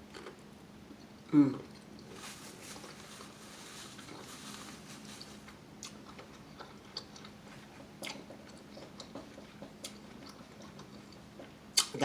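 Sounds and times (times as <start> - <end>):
faint steady hum: 0.0 - 12.0
soft chewing with wet clicks: 5.8 - 12.0.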